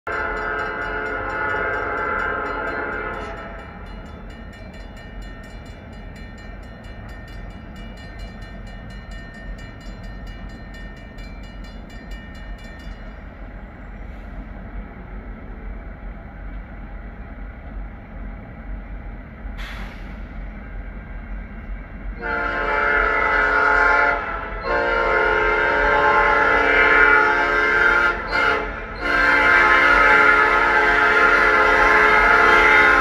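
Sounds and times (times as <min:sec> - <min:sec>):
locomotive air horn: 0:00.1 - 0:03.6, 0:22.2 - 0:33.0
train rumbling by: 0:00.1 - 0:33.0.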